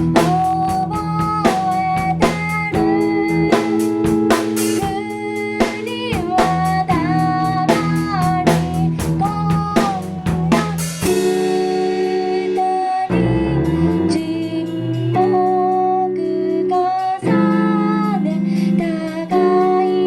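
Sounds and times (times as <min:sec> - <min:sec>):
drums beating: 0:00.0 - 0:15.9
indie-pop band playing: 0:00.0 - 0:20.0
person singing: 0:00.0 - 0:20.0
held guitar chord ringing: 0:11.1 - 0:20.0.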